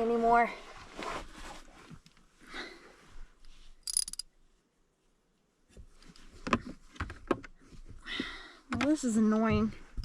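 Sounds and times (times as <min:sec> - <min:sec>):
ratchet wrench clicking: 0:03.8 - 0:04.2.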